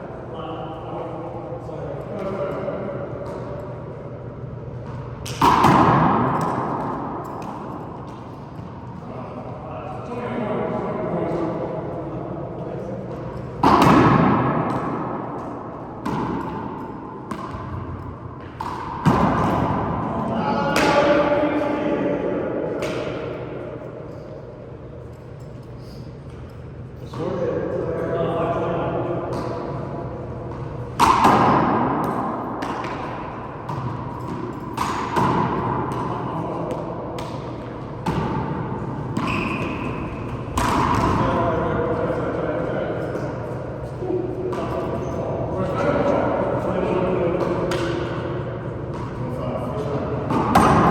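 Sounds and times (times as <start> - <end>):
handball smacking wall and floor: 4.8 - 8.8, 13.6 - 21.2, 22.8 - 23.6, 30.5 - 41.6, 47.2 - 50.9.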